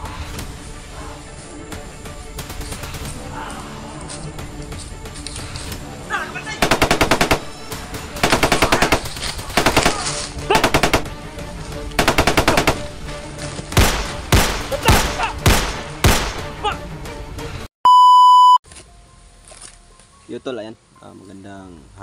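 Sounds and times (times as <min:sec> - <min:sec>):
automatic gunfire bursts: 0:06.6 - 0:11.2, 0:12.0 - 0:12.9
single loud gunshots: 0:13.8 - 0:16.5.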